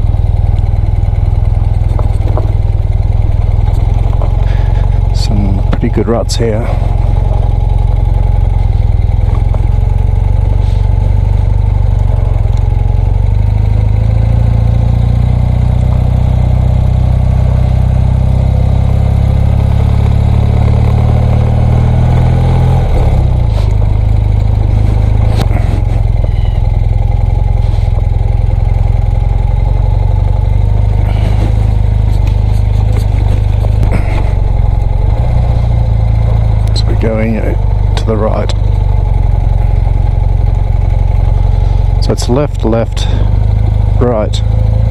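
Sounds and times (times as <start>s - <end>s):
motorcycle engine running: 0.0s - 44.9s
knocks and rattles: 1.7s - 6.0s.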